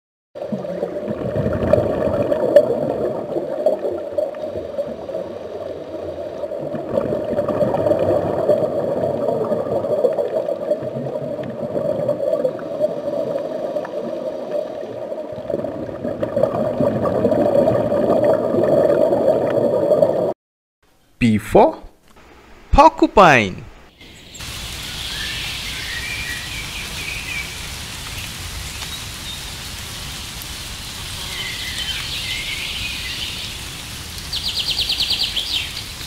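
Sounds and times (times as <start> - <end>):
underwater gurgling and rushing: 0.4 - 20.4.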